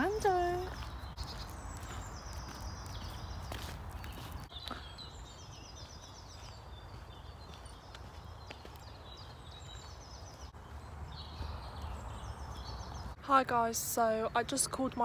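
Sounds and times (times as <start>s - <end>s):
footsteps on dirt path: 0.0s - 13.2s
songbirds singing: 0.0s - 15.0s.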